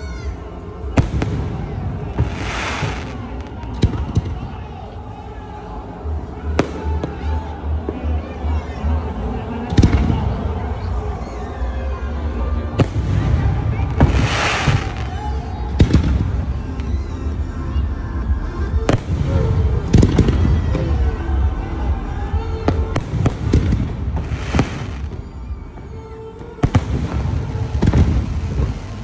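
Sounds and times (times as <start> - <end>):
crackling hissing fireworks: 0.0 - 5.2, 9.6 - 17.9, 18.7 - 29.0
fireworks bangs: 0.8 - 4.7, 12.8 - 17.0, 18.9 - 21.1, 22.6 - 29.0.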